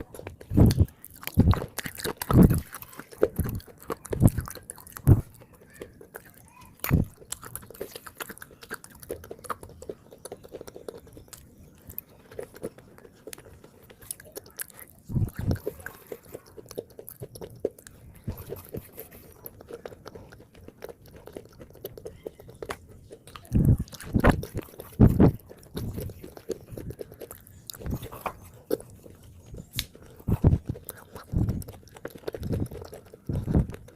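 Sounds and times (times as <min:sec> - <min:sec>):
mouth clicks: 0:00.0 - 0:33.9
person chewing wet clay: 0:00.0 - 0:33.9.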